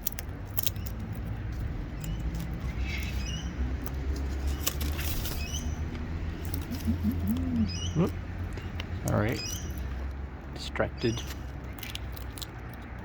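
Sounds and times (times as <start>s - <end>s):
beaks crunching seeds: 0.0s - 13.0s
parrots chirping: 0.6s - 13.0s.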